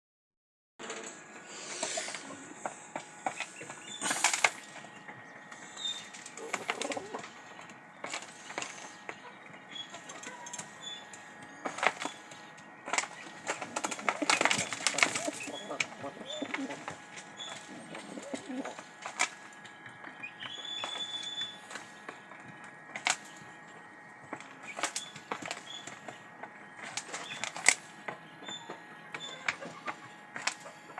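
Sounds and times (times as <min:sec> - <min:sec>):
pigeons cooing: 0:01.9 - 0:22.2, 0:24.6 - 0:30.9
wings flapping: 0:03.3 - 0:04.8, 0:06.3 - 0:07.3, 0:11.6 - 0:19.4.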